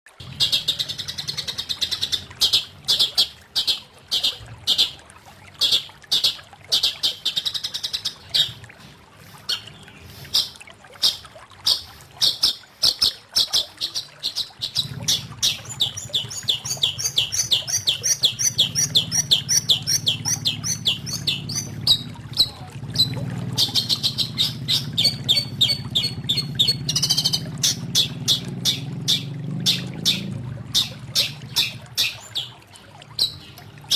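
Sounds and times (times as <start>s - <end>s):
low steady hum: 0.1s - 33.9s
bird singing harsh notes: 9.5s - 32.6s, 33.2s - 33.9s.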